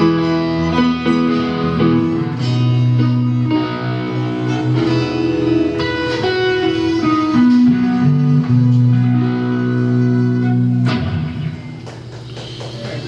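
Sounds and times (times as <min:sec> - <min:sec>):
guitar: 0:00.0 - 0:13.0
live band jamming: 0:00.0 - 0:13.0.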